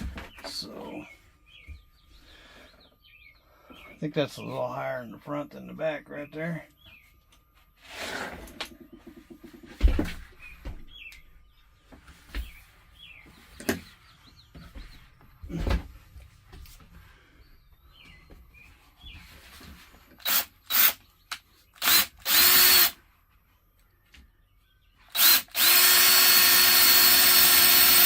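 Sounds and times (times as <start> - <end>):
power drill bursts: 20.2 - 21.0, 21.8 - 23.0, 25.1 - 28.0.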